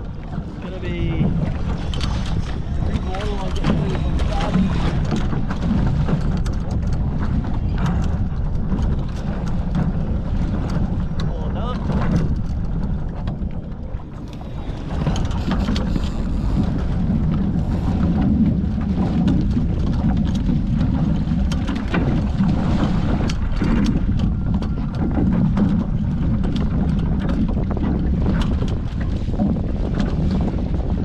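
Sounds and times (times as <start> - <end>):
water rushing along boat hulls: 0.0 - 31.0
wind rumbling on microphone: 0.0 - 31.0.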